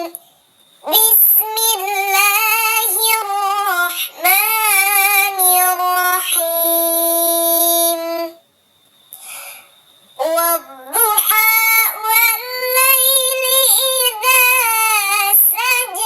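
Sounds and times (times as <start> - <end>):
high childlike voice chanting: 0.8 - 8.4, 10.2 - 16.0.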